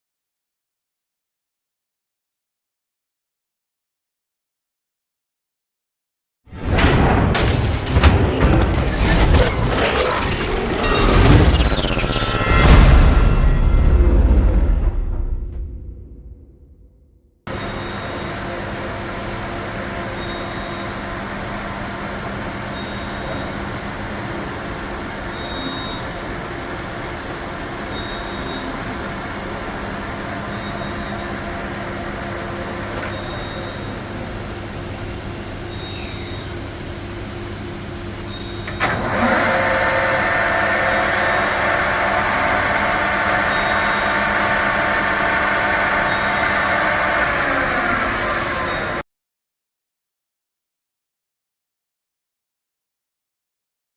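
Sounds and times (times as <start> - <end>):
lathe running with mechanical hum: 17.5 - 49.0.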